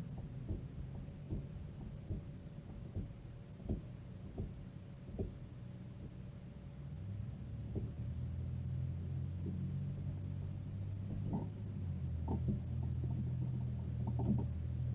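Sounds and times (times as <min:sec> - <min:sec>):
faint knocks: 0:00.0 - 0:06.2
vehicle engine rumble: 0:00.0 - 0:14.9.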